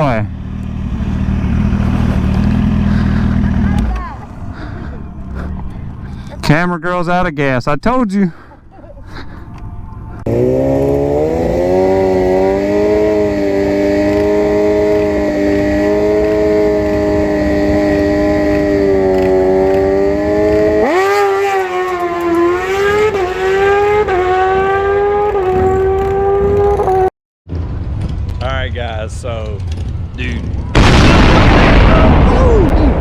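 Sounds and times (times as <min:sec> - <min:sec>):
sport bike engine revving: 0:00.0 - 0:06.4, 0:10.2 - 0:27.1.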